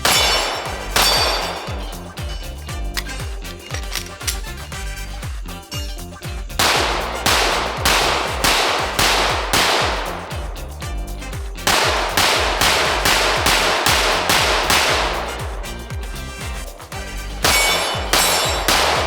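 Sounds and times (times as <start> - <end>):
pistol shots: 0.0 - 2.0, 6.6 - 10.5, 11.6 - 15.4, 17.4 - 19.0
background music: 0.0 - 19.0.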